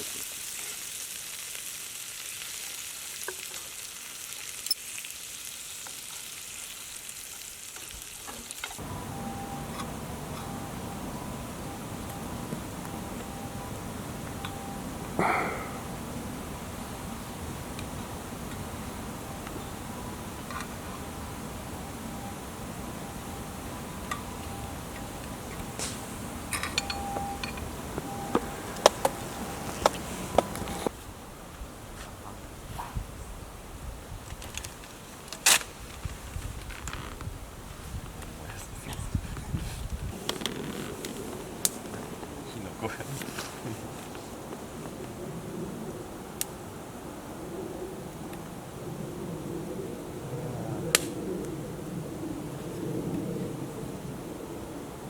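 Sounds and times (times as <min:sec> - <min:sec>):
meat sizzling over a campfire: 0:00.0 - 0:08.9, 0:39.4 - 0:45.2
fire hissing: 0:00.0 - 0:31.0
wood fire crackling: 0:00.0 - 0:31.9, 0:34.1 - 0:46.6, 0:50.9 - 0:51.6
faint steady tones: 0:08.8 - 0:30.9
low rumbling noise: 0:08.8 - 0:34.2.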